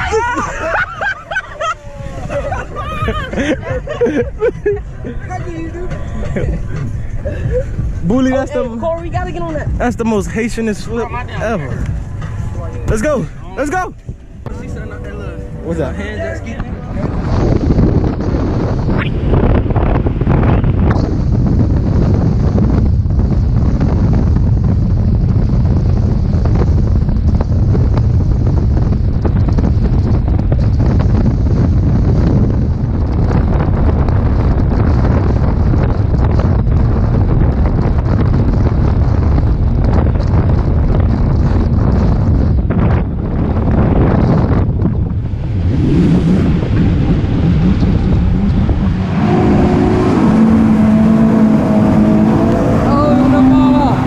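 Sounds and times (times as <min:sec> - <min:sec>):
wind buffeting microphone: 0:00.0 - 0:54.0
steady pitched drone: 0:11.0 - 0:22.2, 0:45.0 - 0:54.0
motorboat engine running: 0:11.1 - 0:54.0.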